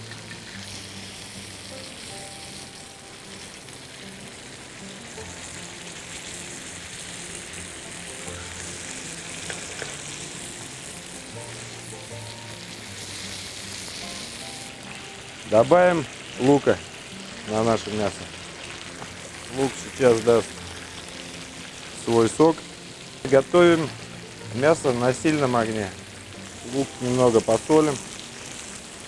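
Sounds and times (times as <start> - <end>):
meat sizzling in hot oil: 0.0 - 29.0.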